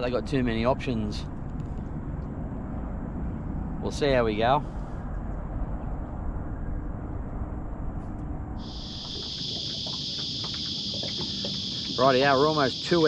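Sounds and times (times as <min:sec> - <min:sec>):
low rumbling noise: 0:00.0 - 0:13.0
cicadas buzzing: 0:08.6 - 0:13.0.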